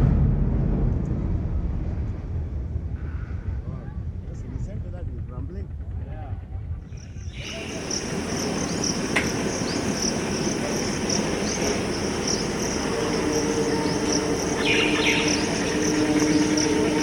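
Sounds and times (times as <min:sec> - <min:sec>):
train rumbling: 0:00.0 - 0:17.0
low two-note hum: 0:06.5 - 0:17.0
crickets chirping: 0:06.8 - 0:17.0.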